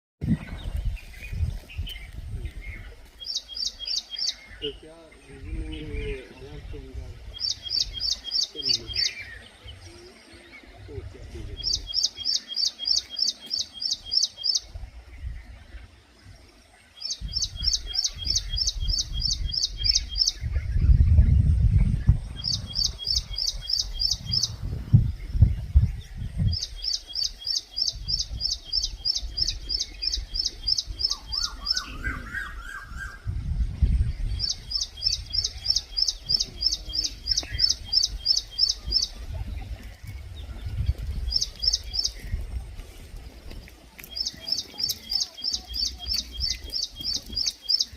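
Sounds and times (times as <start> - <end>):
lower bird call: 26.4 - 33.4.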